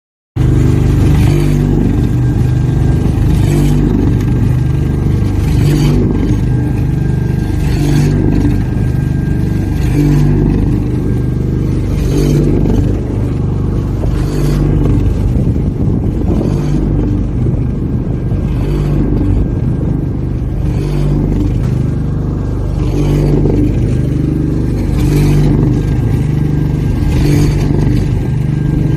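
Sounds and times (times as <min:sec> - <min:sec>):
machine droning with faint whine: 0:00.4 - 0:28.9.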